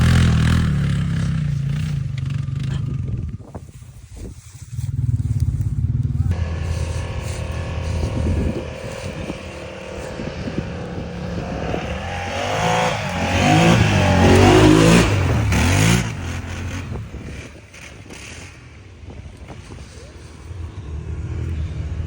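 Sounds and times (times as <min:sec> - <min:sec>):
quad bike engine revving: 0:00.0 - 0:03.5, 0:04.7 - 0:22.0.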